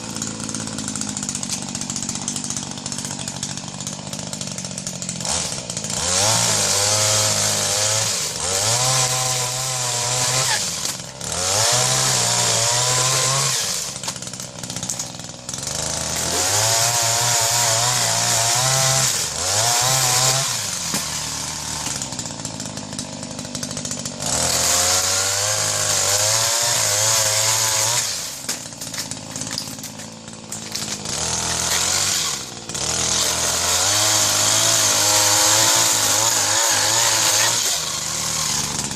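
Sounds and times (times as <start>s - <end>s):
chainsaw revving and idling: 0.0s - 38.9s.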